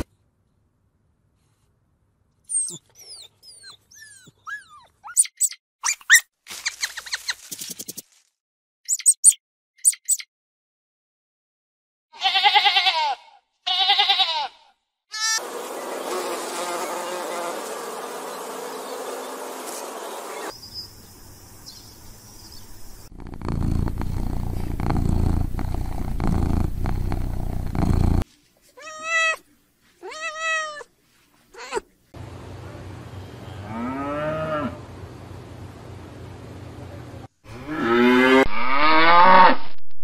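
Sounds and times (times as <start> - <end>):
sheep bleating: 12.1 - 15.4
insect buzzing: 15.4 - 28.2
cat purring: 23.1 - 28.2
cat meowing: 28.8 - 29.4, 30.0 - 30.9, 31.6 - 31.8.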